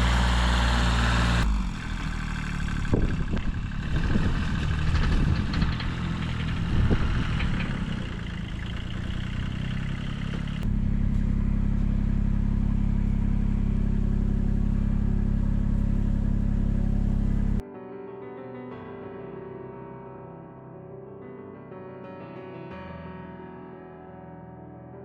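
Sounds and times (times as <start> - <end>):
diesel tractor engine clattering: 0.0 - 17.6.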